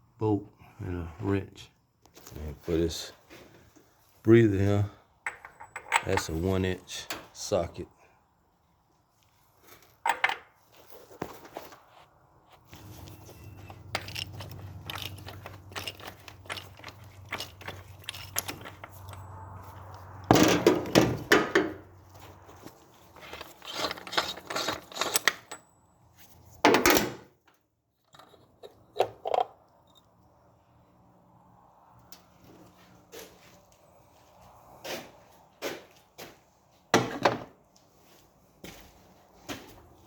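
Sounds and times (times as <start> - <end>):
metal hand tools clattering: 13.6 - 19.3.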